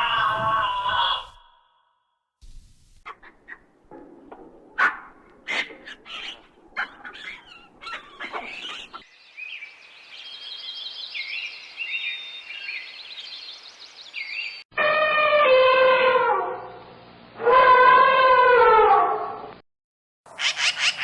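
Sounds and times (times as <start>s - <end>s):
sharp animal calls: 3.0s - 3.8s, 4.8s - 9.1s.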